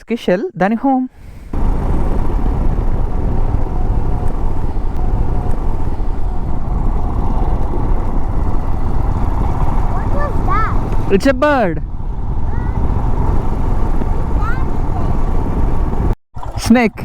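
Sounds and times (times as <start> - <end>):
wind noise on microphone: 1.2 - 17.0
motorcycle engine running: 1.5 - 16.2.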